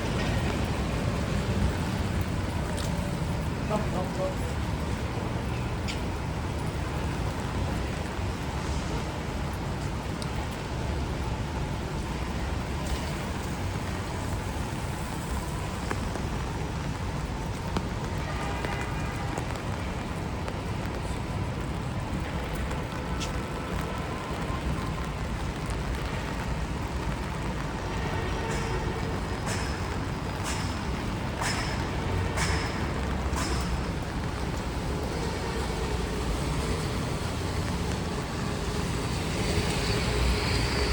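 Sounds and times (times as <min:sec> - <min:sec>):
rain falling on street: 0:00.0 - 0:40.9
traffic on wet pavement: 0:00.0 - 0:40.9.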